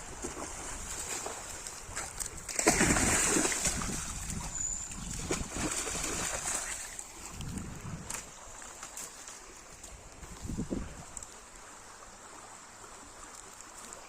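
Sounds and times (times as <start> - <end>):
dog splashing through water: 0.1 - 7.4.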